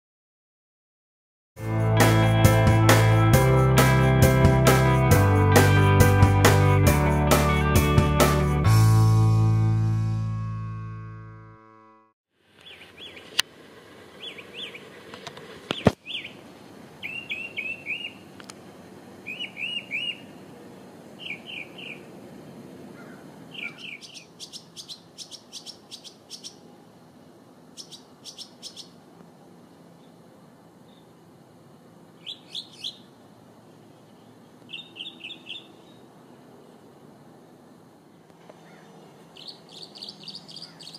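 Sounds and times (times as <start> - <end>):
small birds chirping: 12.6 - 13.4, 14.2 - 15.0, 15.7 - 16.4, 17.0 - 18.4, 19.2 - 26.8, 27.7 - 29.0, 29.9 - 31.3, 32.2 - 37.0, 38.1 - 40.9.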